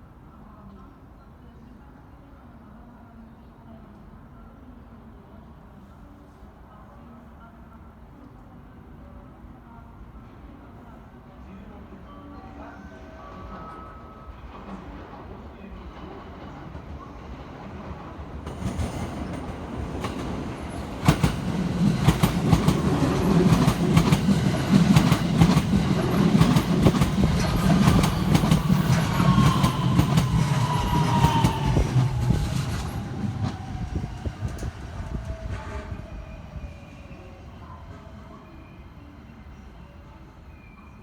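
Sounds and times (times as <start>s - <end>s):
electric train passing: 11.8s - 40.8s.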